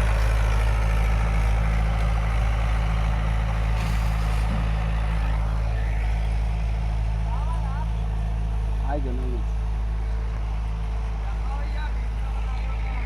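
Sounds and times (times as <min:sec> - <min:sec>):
tractor engine humming: 0:00.0 - 0:13.0.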